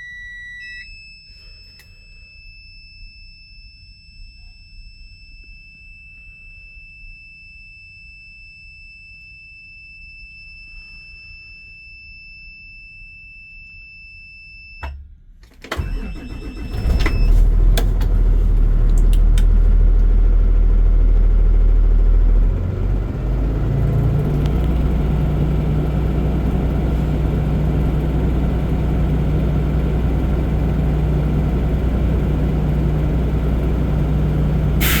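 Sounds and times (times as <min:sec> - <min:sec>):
dashboard warning tone: 0:00.0 - 0:07.0, 0:15.7 - 0:19.4
diesel engine running: 0:15.7 - 0:35.0.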